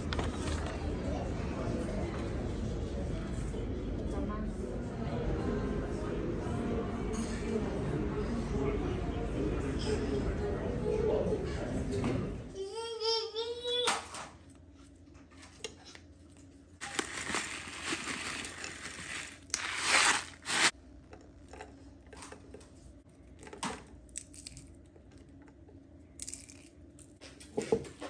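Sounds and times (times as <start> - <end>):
rustling and crinkling: 15.2 - 20.7.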